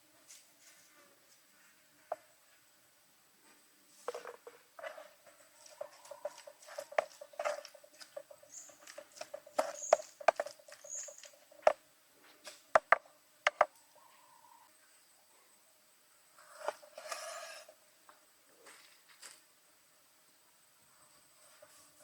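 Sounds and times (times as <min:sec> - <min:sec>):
rustling: 0:03.4 - 0:12.9
sharp knocks: 0:06.2 - 0:11.8, 0:12.8 - 0:13.7.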